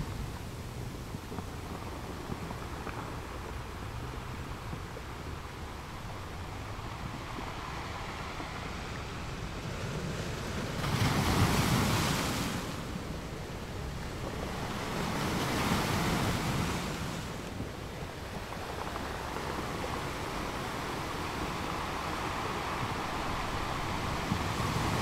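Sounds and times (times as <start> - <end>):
ocean waves crashing on rocks: 5.5 - 25.0.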